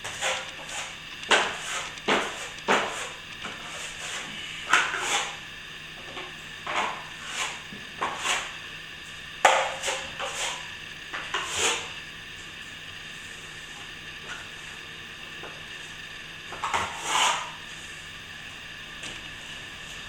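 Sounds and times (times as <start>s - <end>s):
trowel scraping plaster: 0.0s - 5.4s, 6.7s - 8.6s, 9.5s - 11.9s, 16.5s - 17.6s.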